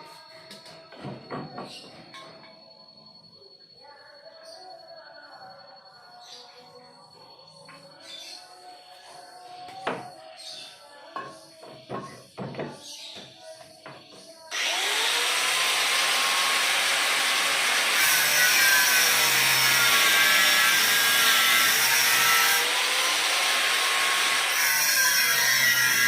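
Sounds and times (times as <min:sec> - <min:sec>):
power tool running: 0:14.5 - 0:26.0.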